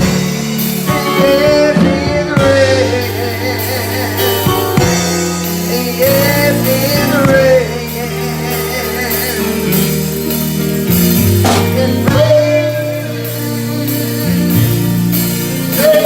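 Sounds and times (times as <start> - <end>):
gospel church music: 0.0 - 16.0
person singing: 0.0 - 16.0.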